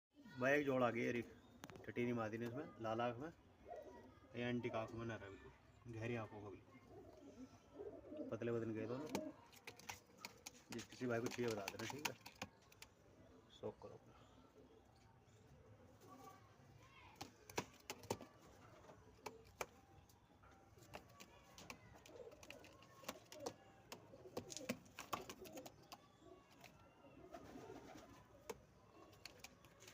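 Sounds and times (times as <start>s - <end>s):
pigeons cooing: 6.8s - 10.5s, 20.8s - 29.3s.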